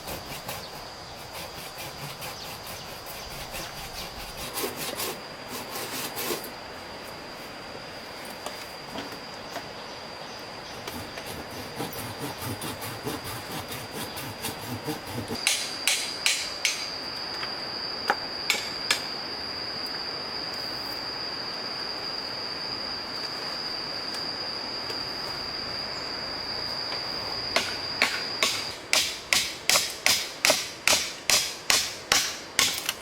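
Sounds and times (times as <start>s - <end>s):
high-pitched whine: 15.0s - 33.0s
sharp knocks on wood: 27.6s - 32.8s.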